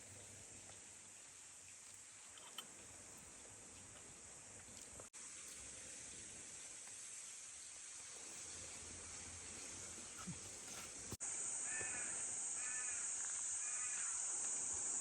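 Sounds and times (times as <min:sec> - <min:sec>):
high-pitched hiss: 0:05.1 - 0:15.0
crow cawing: 0:11.6 - 0:14.2.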